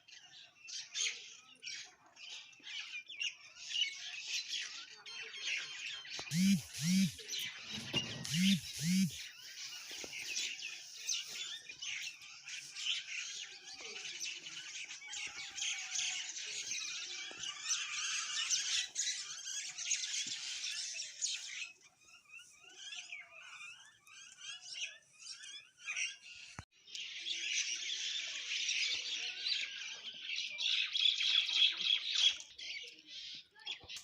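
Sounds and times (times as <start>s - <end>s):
birds chirping: 5.6s - 34.0s.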